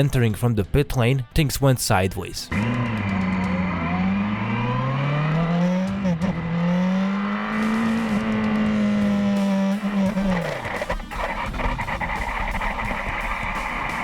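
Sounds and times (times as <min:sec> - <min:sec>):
motorcycle engine revving: 0:02.5 - 0:14.0.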